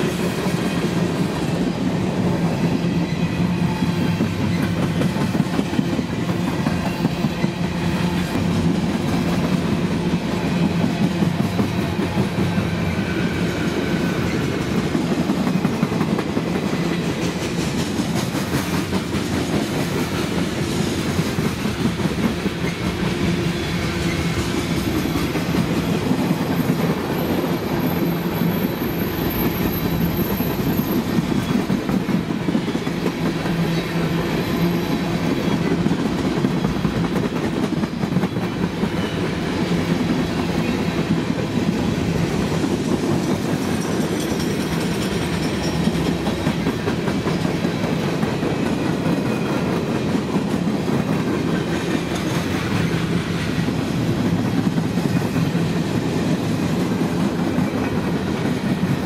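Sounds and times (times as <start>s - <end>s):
steel wheels rumbling on rails: 0.0s - 59.0s
wheels clacking over rail joints: 29.2s - 55.6s.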